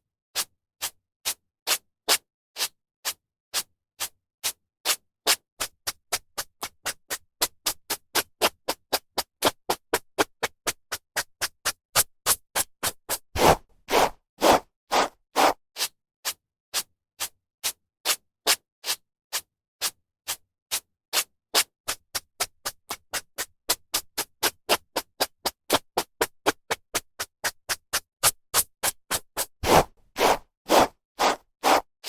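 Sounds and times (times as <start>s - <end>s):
hairbrush strokes through hair: 13.4s - 15.6s, 29.6s - 31.8s.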